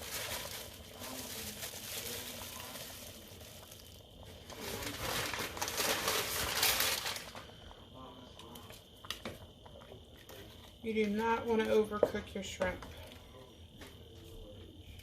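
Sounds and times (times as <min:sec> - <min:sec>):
shrimp crinkling and rustling: 0:00.0 - 0:07.6.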